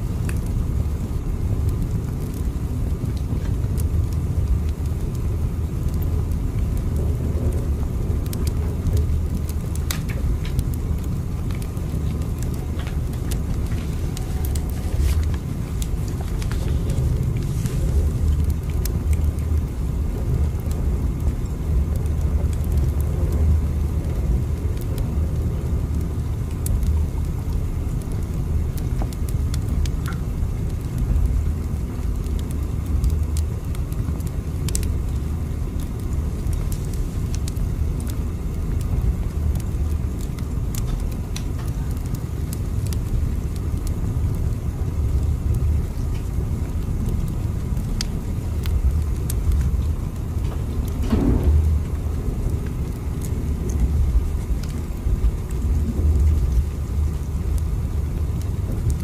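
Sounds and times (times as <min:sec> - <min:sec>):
train rumbling: 0:12.4 - 0:24.2, 0:49.7 - 0:57.3.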